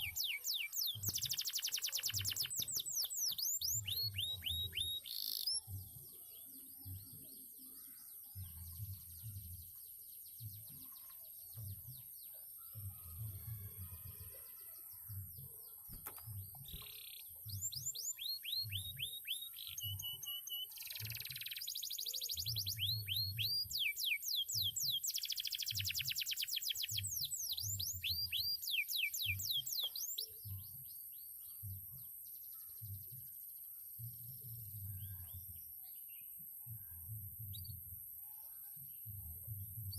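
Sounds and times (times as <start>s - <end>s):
canary twittering: 0.0s - 5.6s.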